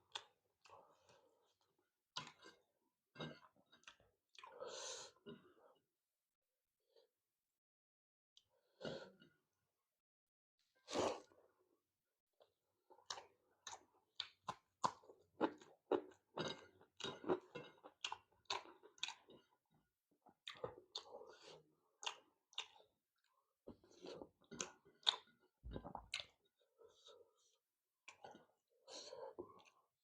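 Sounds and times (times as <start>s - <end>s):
chewing food: 0.1s - 4.6s, 12.4s - 30.0s.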